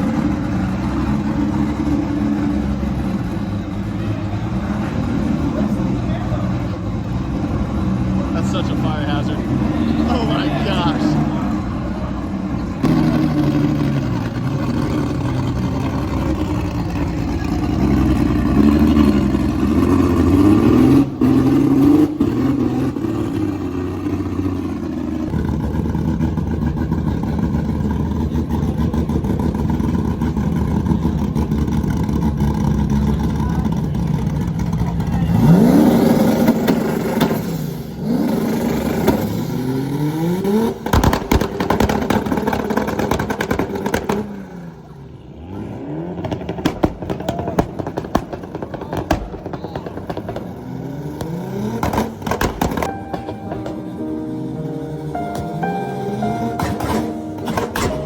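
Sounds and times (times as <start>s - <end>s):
car engine revving: 0.0s - 58.0s
sharp cracks: 40.8s - 44.3s, 46.3s - 52.9s.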